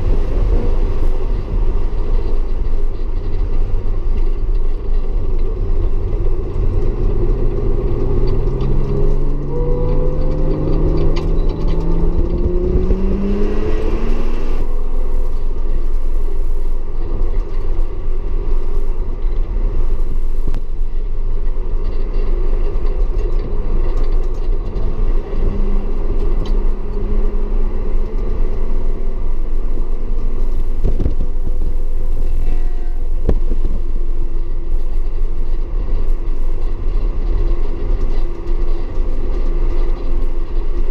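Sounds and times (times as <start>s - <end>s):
car and road noise rumble: 0.0s - 40.9s
car engine revving: 5.9s - 16.6s.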